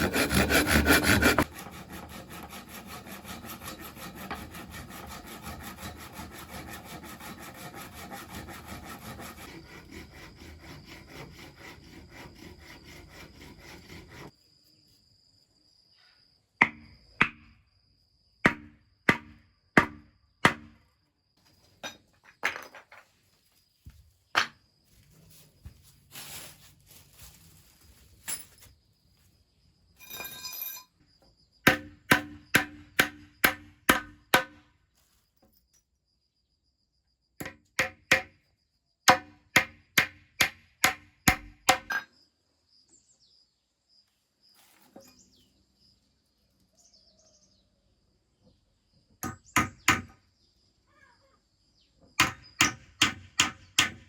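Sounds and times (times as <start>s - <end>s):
hammer driving nails into wood: 31.7s - 34.6s, 39.1s - 42.0s, 49.2s - 50.2s, 52.2s - 54.0s.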